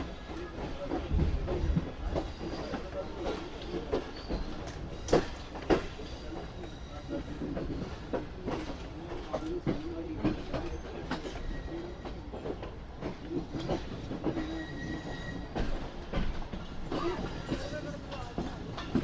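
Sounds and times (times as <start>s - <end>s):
train wheels clattering on rails: 0.0s - 19.0s
wavering wheel squeal: 14.4s - 15.6s.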